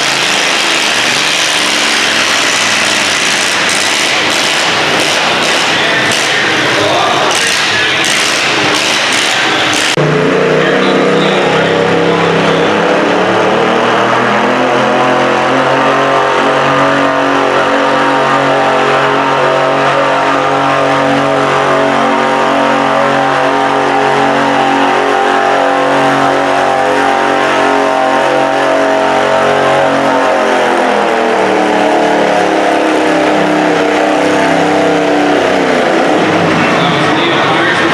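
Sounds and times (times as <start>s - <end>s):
garden tractor engine under load: 0.0s - 15.5s.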